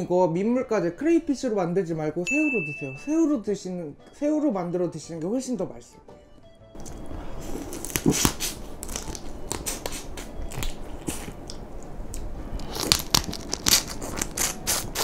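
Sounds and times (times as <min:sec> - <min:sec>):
crunching shellfish shells: 0:07.6 - 0:15.0.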